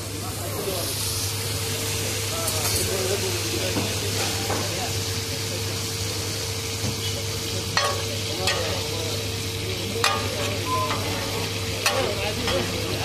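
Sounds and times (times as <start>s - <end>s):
chicken sizzling on griddle: 0.0s - 13.0s
spatula clanking on griddle: 6.9s - 8.9s, 9.9s - 13.0s.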